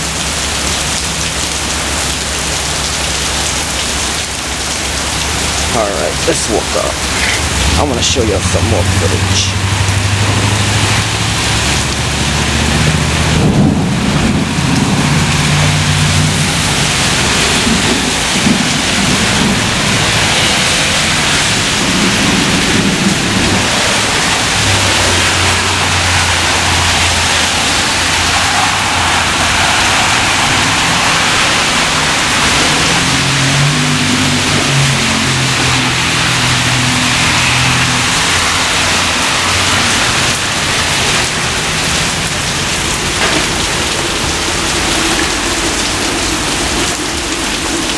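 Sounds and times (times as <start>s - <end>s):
heavy rain pouring: 0.0s - 47.9s
low thunder rumble: 9.5s - 25.9s.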